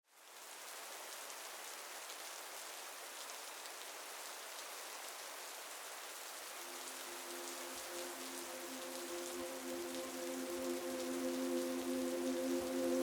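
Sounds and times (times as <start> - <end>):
steady rain: 0.0 - 13.0
low sustained music notes: 6.6 - 13.0.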